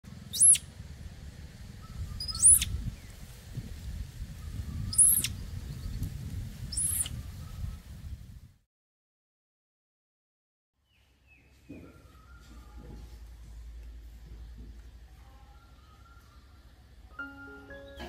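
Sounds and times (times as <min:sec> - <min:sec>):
low background rumble: 0:00.1 - 0:06.6
high-pitched animal chirps: 0:00.3 - 0:00.6, 0:02.2 - 0:02.8, 0:04.9 - 0:05.4, 0:06.7 - 0:07.1.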